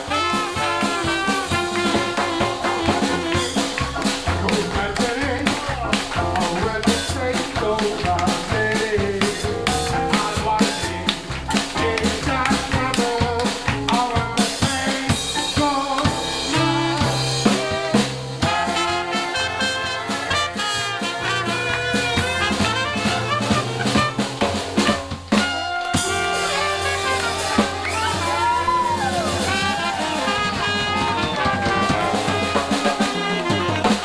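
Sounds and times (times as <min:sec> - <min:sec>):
horns holding wavering notes: 0:00.0 - 0:06.9, 0:16.4 - 0:34.0
drum kit rimshots and bass drum: 0:00.0 - 0:34.0
jazz band playing swing: 0:00.0 - 0:34.0.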